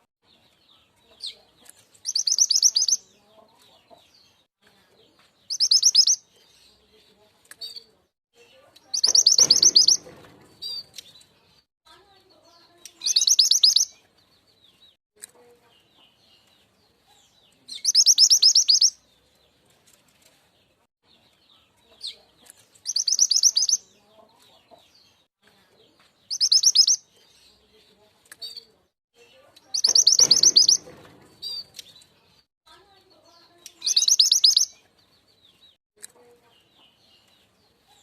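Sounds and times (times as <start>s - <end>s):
faint bird chirps: 2.0s - 3.1s, 5.5s - 6.9s, 7.6s - 10.8s, 12.5s - 14.0s, 17.1s - 19.0s, 21.5s - 24.6s, 26.3s - 27.6s, 28.4s - 32.0s, 33.3s - 34.8s
bird high-pitched trills: 9.0s - 10.8s, 13.0s - 13.9s, 29.7s - 31.7s, 33.8s - 34.7s.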